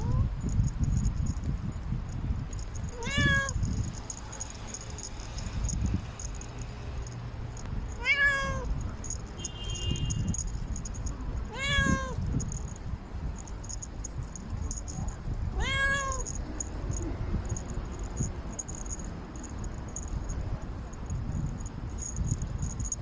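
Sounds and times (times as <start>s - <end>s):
cat meowing loudly: 2.9s - 3.6s, 8.0s - 8.8s, 11.5s - 12.3s, 15.5s - 16.5s.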